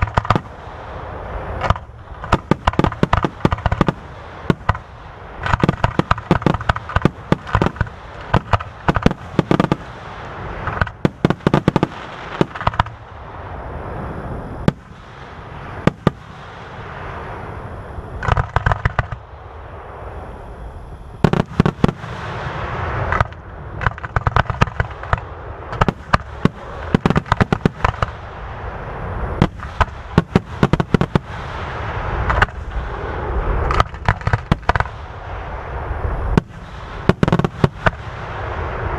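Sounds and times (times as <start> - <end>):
fireworks booms and crackles: 0.0 - 14.0, 14.6 - 17.5, 18.2 - 19.7, 21.2 - 38.9
fireworks hissing rush: 0.0 - 38.9.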